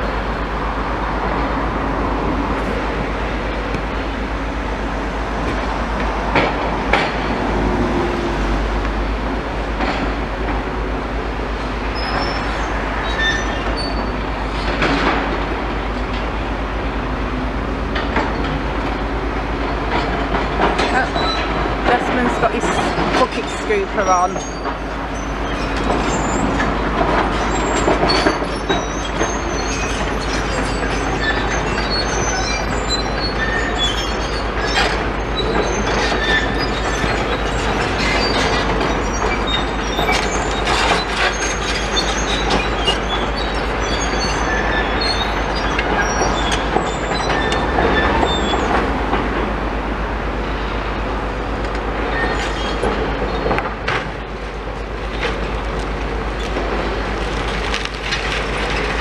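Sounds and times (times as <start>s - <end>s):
excavator diesel engines running: 0.0s - 59.0s
high squeals of steel: 12.0s - 14.2s, 22.7s - 48.8s
knocks and clatters: 51.6s - 54.3s.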